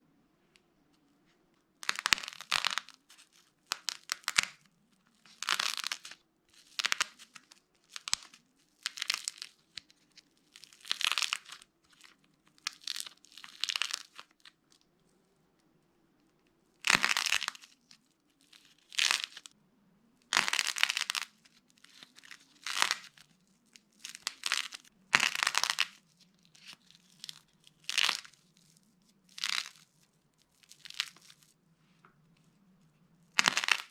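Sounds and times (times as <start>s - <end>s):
dry block crunching and cracking: 10.6s - 14.5s, 20.3s - 26.0s, 26.6s - 28.4s, 29.3s - 29.8s, 30.5s - 31.4s, 33.4s - 33.9s.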